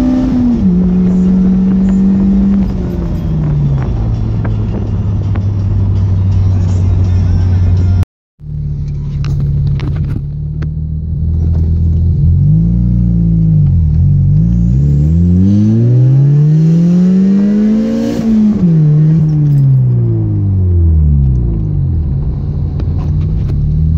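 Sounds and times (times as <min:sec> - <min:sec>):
car engine revving from inside cabin: 0:00.0 - 0:05.6, 0:10.5 - 0:23.9.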